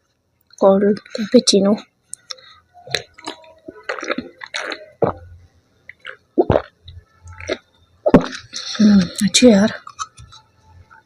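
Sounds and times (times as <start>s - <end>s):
sipping and swallowing: 2.9s - 5.2s, 5.9s - 6.8s.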